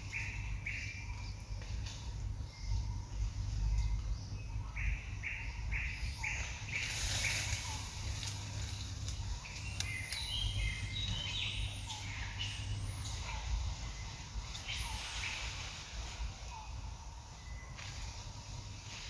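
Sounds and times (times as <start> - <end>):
birds chirping and calling: 0.0 - 19.0
steady low rumble: 0.0 - 19.0.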